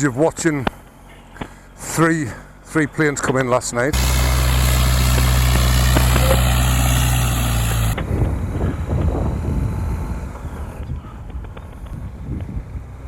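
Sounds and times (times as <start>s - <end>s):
motorcycle engine running: 4.0s - 13.0s
wind noise: 7.8s - 13.0s.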